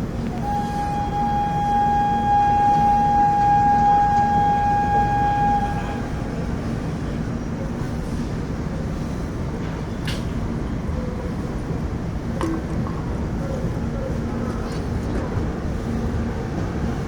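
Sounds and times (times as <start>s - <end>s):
train rumble: 0.0s - 17.0s
locomotive horn blast: 0.3s - 6.6s.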